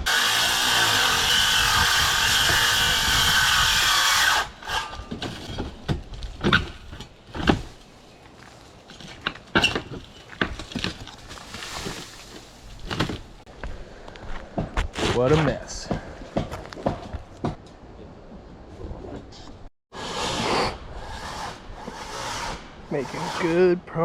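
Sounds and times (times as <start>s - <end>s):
power tool running: 0.0s - 4.6s
knocks and thumps of wood: 5.0s - 7.8s, 9.0s - 13.3s.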